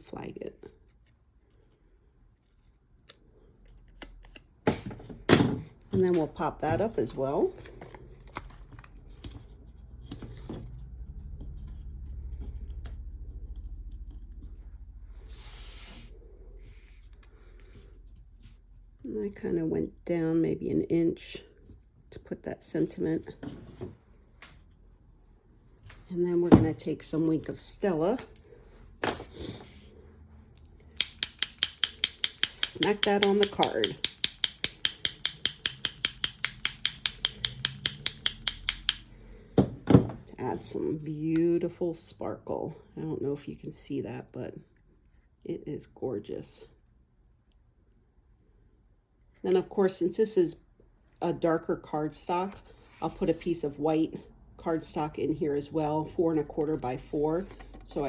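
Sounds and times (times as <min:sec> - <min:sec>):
low steady hum: 0:00.0 - 0:58.0
cardstock clicks and handling: 0:30.9 - 0:39.1.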